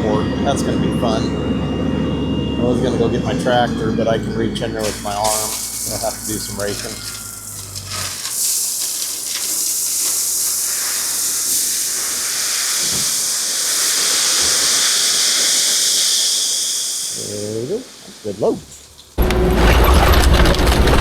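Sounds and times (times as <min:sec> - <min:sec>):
low engine hum: 0:00.5 - 0:08.1
gravel rushing and sliding: 0:04.7 - 0:21.0.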